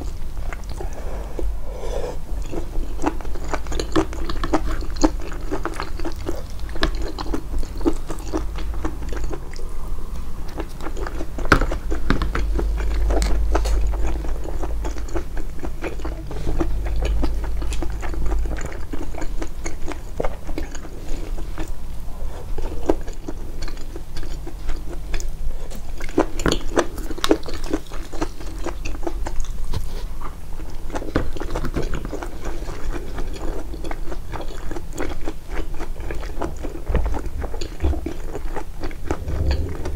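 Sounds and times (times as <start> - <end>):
low hum: 0.0 - 3.9, 7.1 - 22.6, 38.8 - 39.9
close chewing and biting: 0.0 - 39.9.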